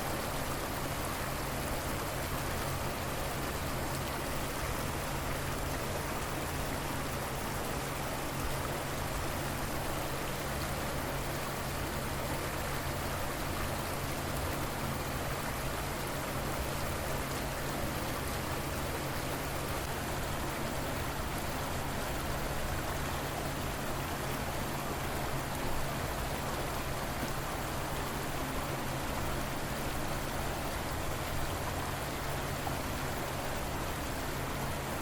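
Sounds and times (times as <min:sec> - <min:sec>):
river water flowing: 0:00.0 - 0:35.0.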